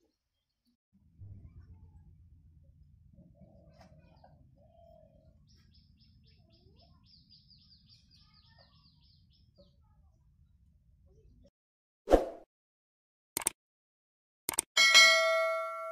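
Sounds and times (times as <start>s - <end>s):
faint birdsong: 0.0s - 11.5s
low background rumble: 1.0s - 6.2s.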